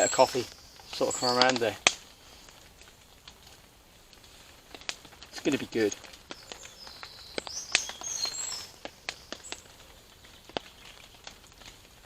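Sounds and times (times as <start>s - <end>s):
small bird singing: 0.0s - 1.6s, 5.6s - 10.8s.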